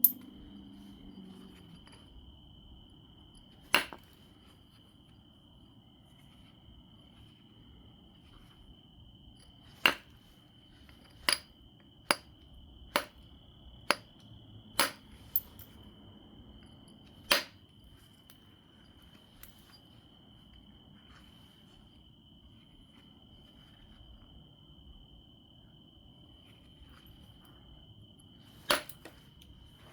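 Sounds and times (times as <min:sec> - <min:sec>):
stone knapping clicks: 0:13.0 - 0:13.2.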